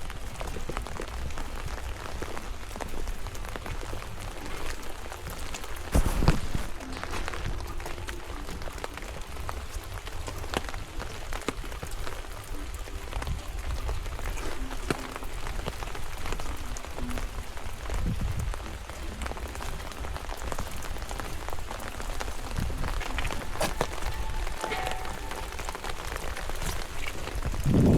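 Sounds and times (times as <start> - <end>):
rain drops pattering: 0.0 - 27.9.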